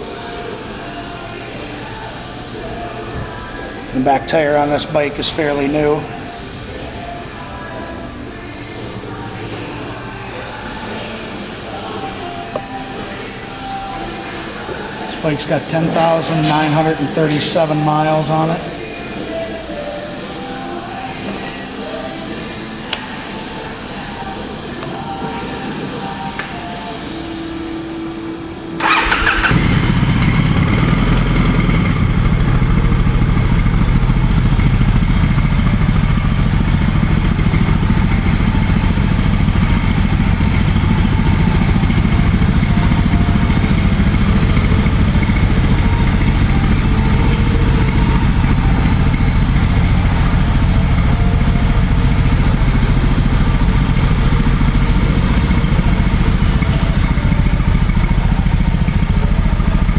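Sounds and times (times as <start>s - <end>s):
motorcycle engine idling: 28.8s - 59.9s.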